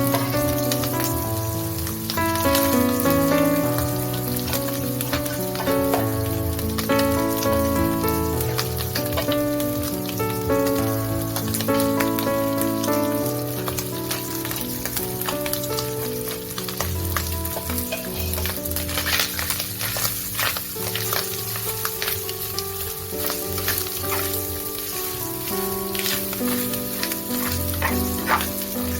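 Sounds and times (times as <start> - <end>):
food sizzling in frying pan: 0.0 - 28.9
spatula scraping pan: 25.4 - 28.9.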